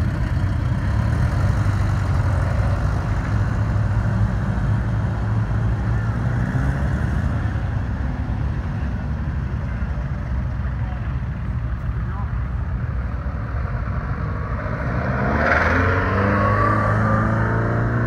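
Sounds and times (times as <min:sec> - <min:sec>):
car engines running: 0:00.0 - 0:18.0.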